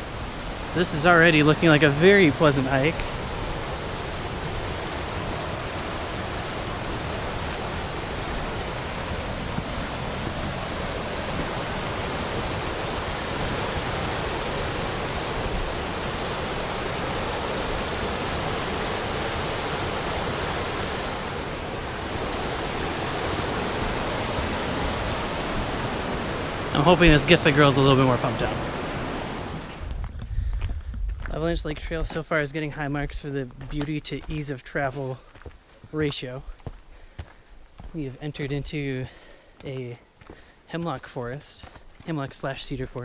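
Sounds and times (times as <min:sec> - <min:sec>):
mountain creek rushing: 0:00.0 - 0:29.9.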